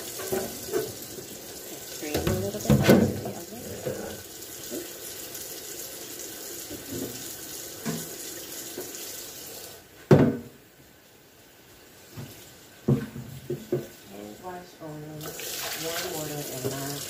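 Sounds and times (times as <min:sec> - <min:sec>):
tap running into sink: 0:00.0 - 0:01.3, 0:02.0 - 0:05.0, 0:06.6 - 0:09.0.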